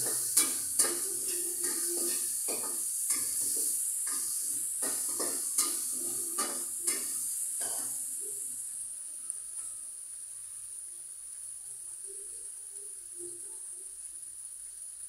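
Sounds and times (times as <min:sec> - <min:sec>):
utensil scraping a pan: 0:00.0 - 0:08.0
food sizzling in a pan: 0:00.0 - 0:15.0.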